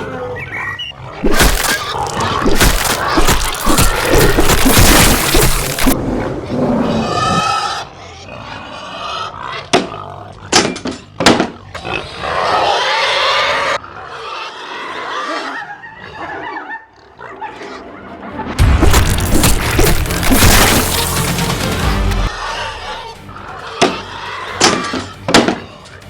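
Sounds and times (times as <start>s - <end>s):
background music: 18.1s - 26.0s.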